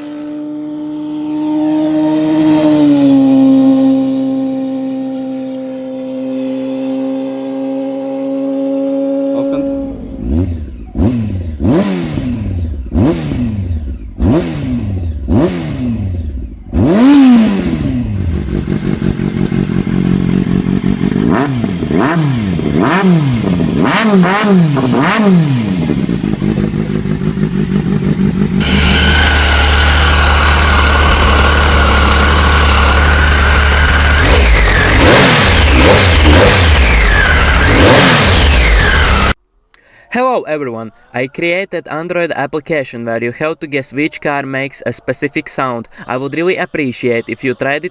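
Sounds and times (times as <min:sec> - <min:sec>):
motorcycle engine revving: 0:00.0 - 0:39.4
motorcycle engine idling: 0:09.4 - 0:11.7, 0:12.3 - 0:23.8, 0:24.7 - 0:39.4.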